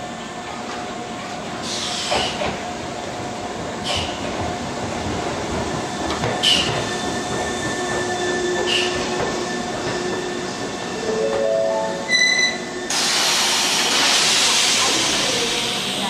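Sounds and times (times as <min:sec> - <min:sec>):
train rumble and hum: 0:00.0 - 0:16.0
high wheel squeals: 0:12.1 - 0:12.9.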